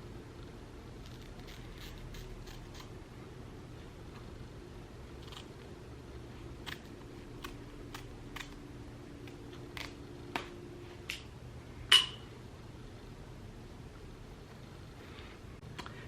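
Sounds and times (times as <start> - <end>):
scissors snipping: 1.0 - 3.0, 5.2 - 5.6, 6.6 - 8.6.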